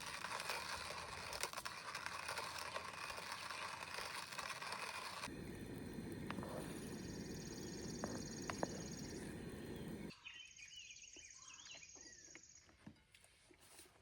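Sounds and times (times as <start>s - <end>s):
hissing scraping noise: 0.0s - 10.1s
insects chirring: 5.3s - 10.1s.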